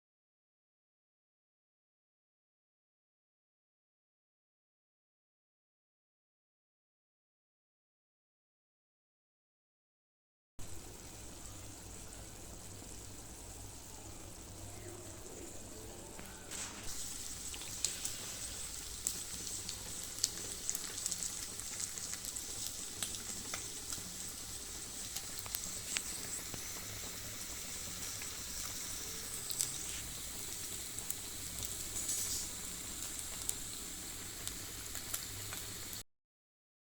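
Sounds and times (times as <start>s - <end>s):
chicken sizzling in a pan: 10.6s - 36.0s.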